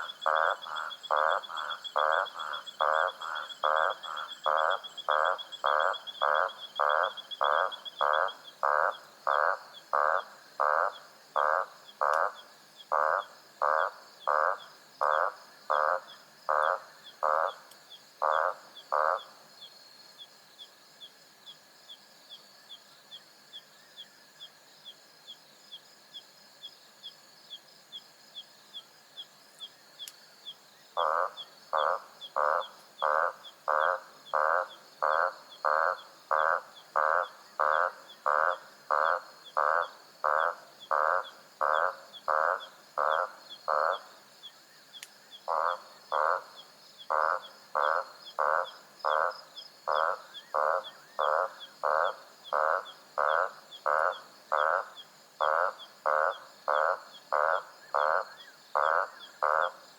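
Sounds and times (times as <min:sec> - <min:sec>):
frog calling loudly: 0:00.0 - 0:19.5, 0:30.9 - 0:44.3, 0:44.9 - 0:59.9
faint ticking insect chorus: 0:00.0 - 0:59.9.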